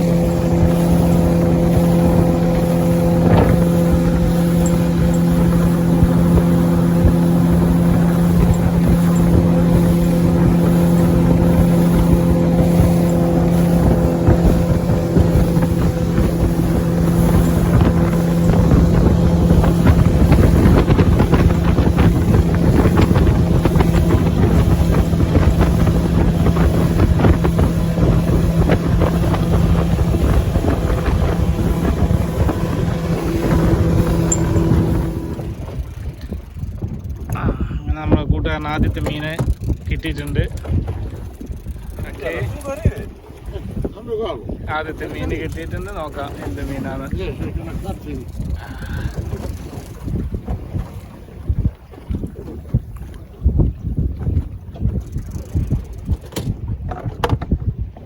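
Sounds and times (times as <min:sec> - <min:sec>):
rushing water: 0:00.0 - 0:38.1
motorboat engine running: 0:00.0 - 0:58.0
wind buffeting microphone: 0:00.0 - 0:58.0.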